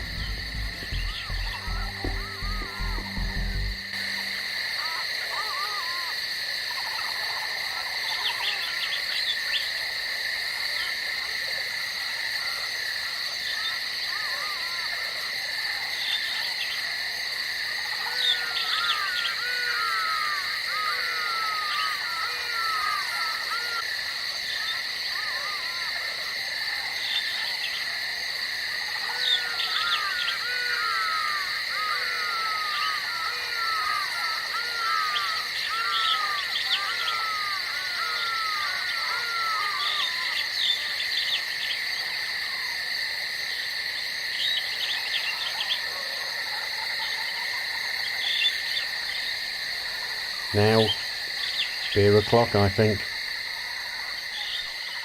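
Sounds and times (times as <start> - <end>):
downward-sweeping animal calls: 0.0 - 7.0, 28.9 - 41.4
high insect drone: 0.0 - 55.0.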